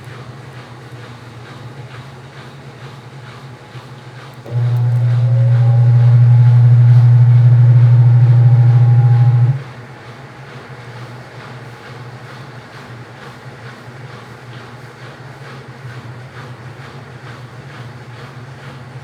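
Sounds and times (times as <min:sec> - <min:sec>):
washing machine motor humming: 0:03.2 - 0:09.8, 0:15.8 - 0:19.0
faint whine: 0:04.5 - 0:09.6.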